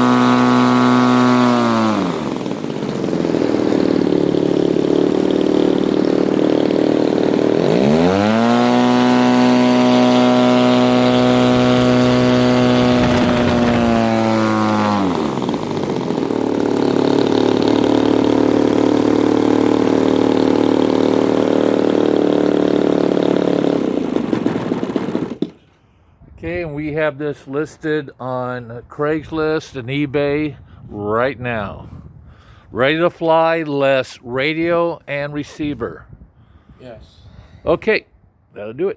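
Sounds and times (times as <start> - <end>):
model airplane engine revving: 0.0 - 25.6.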